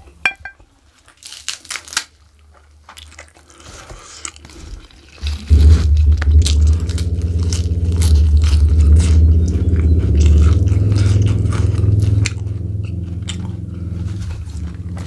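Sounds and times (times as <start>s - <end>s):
crunching and tearing leaves: 1.0s - 15.0s
person chewing: 1.1s - 15.0s
low jagged rumble: 5.2s - 15.0s.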